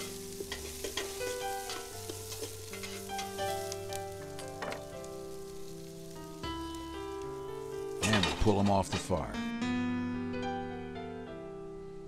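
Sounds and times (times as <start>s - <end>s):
utensil scraping a pot: 0.0s - 3.8s
onion sizzling in hot oil: 0.0s - 9.3s
background music of held notes: 0.0s - 12.0s.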